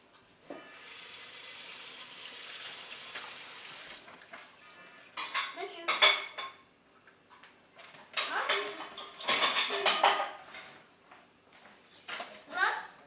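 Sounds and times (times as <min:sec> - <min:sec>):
running water: 0:00.7 - 0:04.8
dishes and cutlery clinking: 0:04.2 - 0:06.6, 0:07.8 - 0:10.8.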